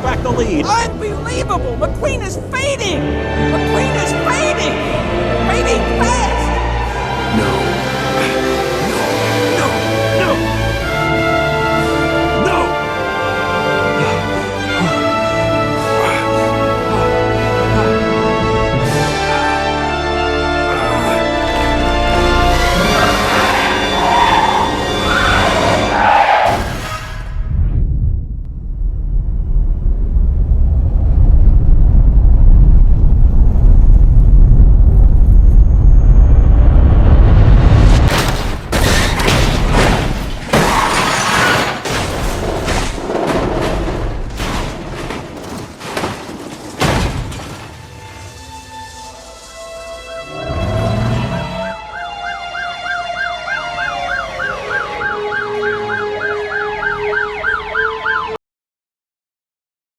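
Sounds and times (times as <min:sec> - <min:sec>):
sirens wailing: 0:04.8 - 0:26.5, 0:47.9 - 0:58.4.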